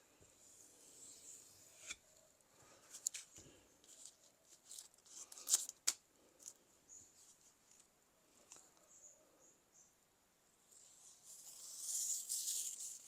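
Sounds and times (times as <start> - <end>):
knife scraping and rustling: 1.2 - 2.1.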